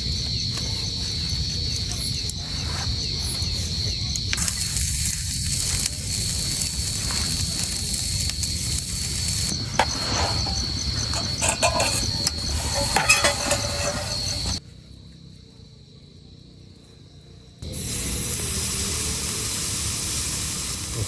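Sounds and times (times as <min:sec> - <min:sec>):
insect pulsing chirp: 0:00.0 - 0:21.0
insect high trill: 0:04.4 - 0:14.6.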